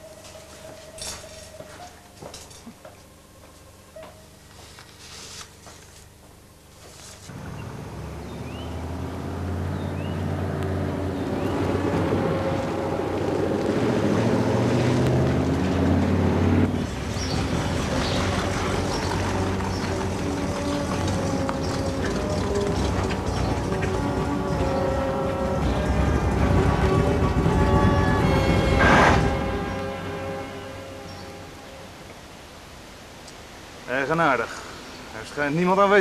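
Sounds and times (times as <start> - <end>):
vintage car engine driving: 7.3 - 30.5.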